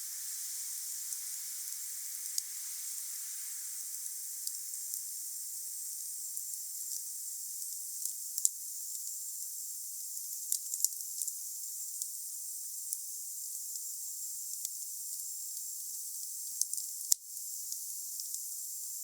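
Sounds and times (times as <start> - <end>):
wood fire crackling and hissing: 0.0 - 8.6.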